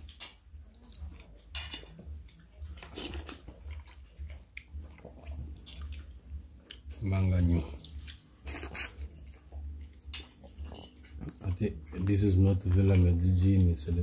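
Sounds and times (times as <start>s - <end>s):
chewing: 0.0s - 14.0s
plates and spoons clinking: 1.4s - 2.2s, 10.0s - 11.4s.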